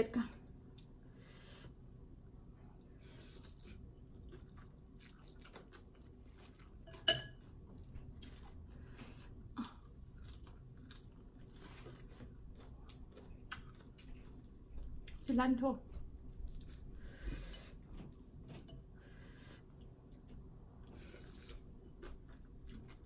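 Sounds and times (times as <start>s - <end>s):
person chewing: 2.8s - 15.2s, 15.9s - 18.8s, 19.6s - 23.0s
utensil clinking against dish: 6.9s - 7.4s.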